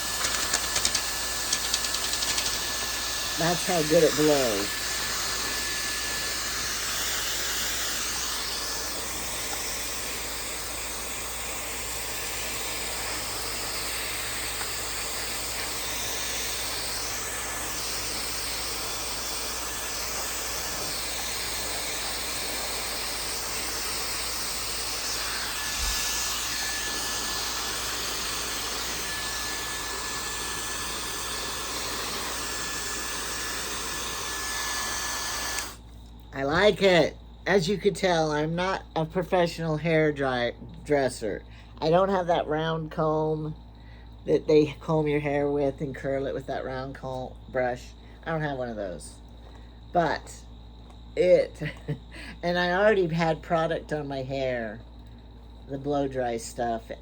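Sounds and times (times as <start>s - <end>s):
hair dryer running: 0.0s - 37.0s.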